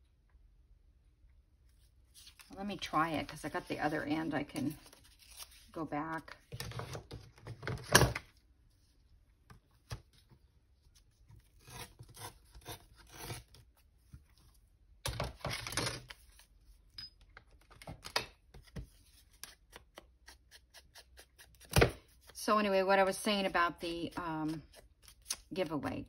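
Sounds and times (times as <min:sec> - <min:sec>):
paper rustling and scraping: 0:01.8 - 0:07.2.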